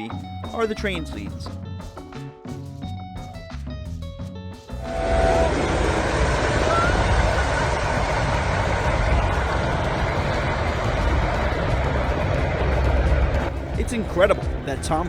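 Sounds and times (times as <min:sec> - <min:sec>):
train rumbling along track: 0:04.8 - 0:15.0.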